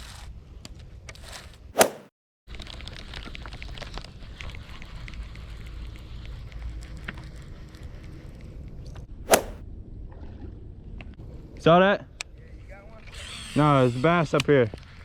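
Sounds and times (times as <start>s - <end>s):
loud sharp knock: 9.3s - 9.6s.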